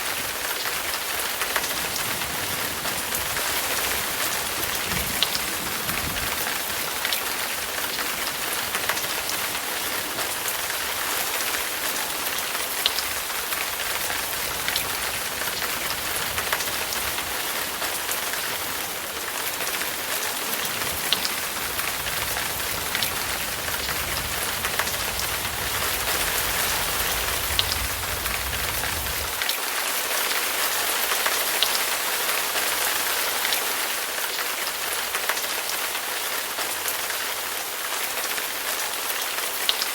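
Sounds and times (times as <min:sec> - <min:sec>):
steady rain hiss: 0:00.0 - 0:39.9
low rumble: 0:21.0 - 0:29.4.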